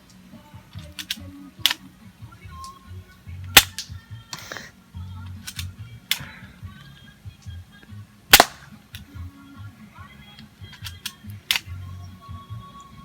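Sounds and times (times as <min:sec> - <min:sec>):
background music: 0:00.0 - 0:13.0
airsoft pistol shots: 0:03.6 - 0:04.5, 0:08.3 - 0:08.8.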